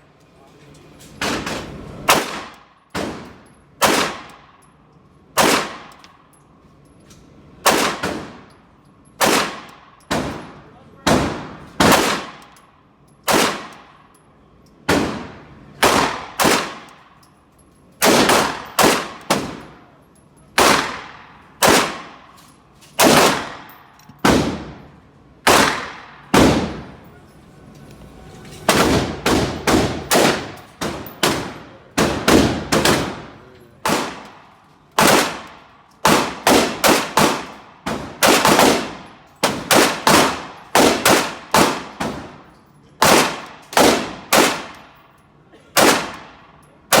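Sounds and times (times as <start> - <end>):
pistol shots echoing: 1.2 - 4.5, 5.4 - 6.0, 7.6 - 8.5, 9.2 - 12.6, 13.2 - 14.1, 14.9 - 17.2, 18.0 - 19.9, 20.6 - 22.4, 23.0 - 27.0, 28.7 - 42.4, 43.0 - 45.0, 45.7 - 47.0.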